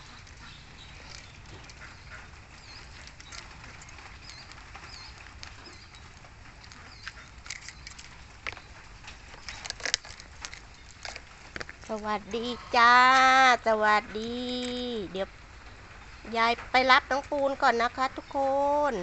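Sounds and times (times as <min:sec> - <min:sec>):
bird calls and chirps: 0:00.0 - 0:11.2
low background noise: 0:00.0 - 0:19.0.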